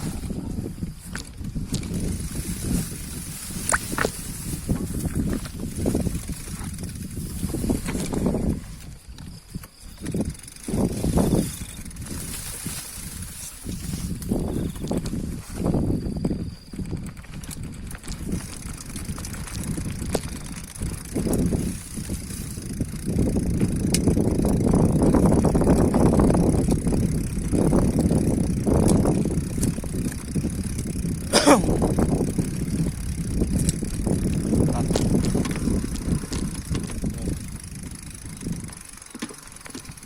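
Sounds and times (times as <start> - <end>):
bicycle tyres rumbling and rattling: 0.0 - 40.0.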